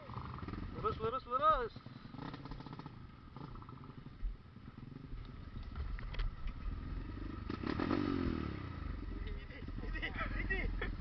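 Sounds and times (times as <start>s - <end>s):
off-road vehicle engine: 0.0s - 11.0s.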